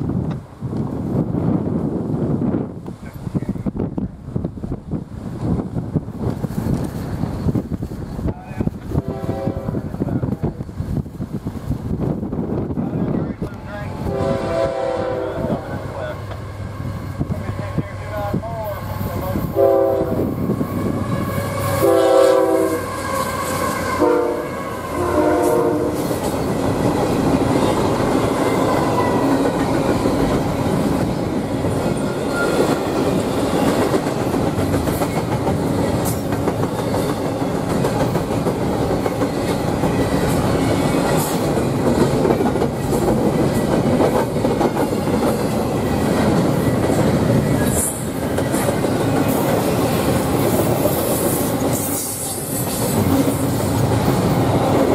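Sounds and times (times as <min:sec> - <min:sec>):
train rumbling past: 0:00.0 - 0:54.9
locomotive horn blasts: 0:09.0 - 0:09.8, 0:14.0 - 0:15.7, 0:19.6 - 0:20.3, 0:20.9 - 0:26.1
wheels clacking over rails: 0:26.0 - 0:50.9.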